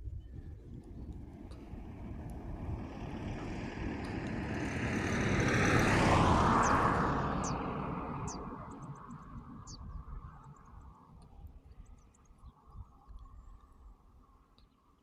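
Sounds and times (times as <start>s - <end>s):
motor vehicle passing by: 0.6s - 10.9s.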